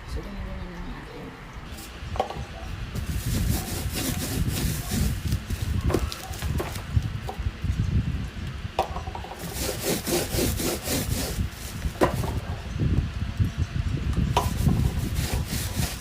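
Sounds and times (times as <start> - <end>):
parcel rubbed and scraped by hand: 3.0 - 6.4, 9.3 - 12.4, 14.4 - 16.0.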